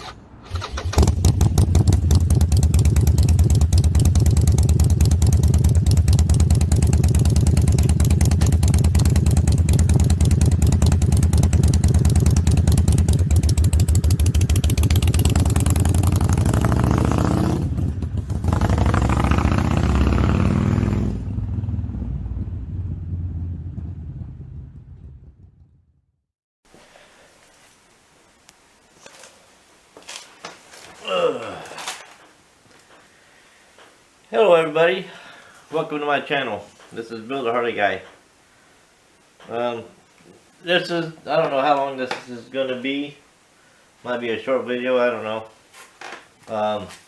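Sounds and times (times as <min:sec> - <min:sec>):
motorcycle engine running: 0:00.5 - 0:26.0.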